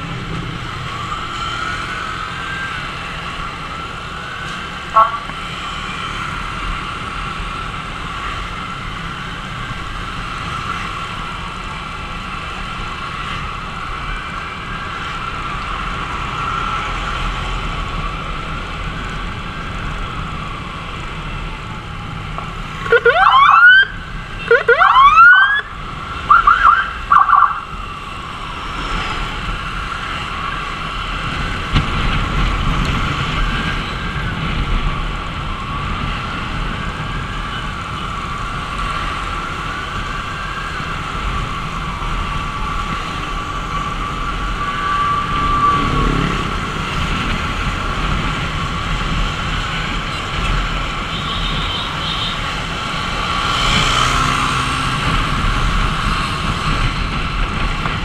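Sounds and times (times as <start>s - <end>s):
ambulance siren wailing: 0.0s - 58.0s
close siren whoops and yelps: 19.0s - 28.8s, 39.2s - 46.8s.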